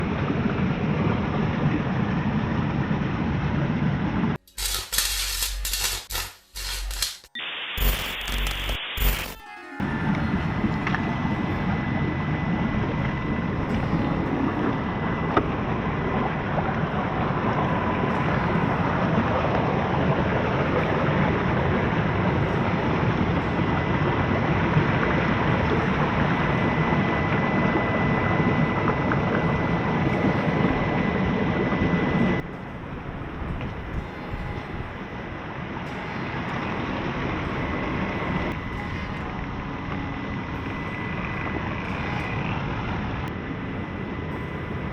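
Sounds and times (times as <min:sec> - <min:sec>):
small electric motor whine: 0:04.4 - 0:44.9
wind noise on microphone: 0:09.0 - 0:44.9.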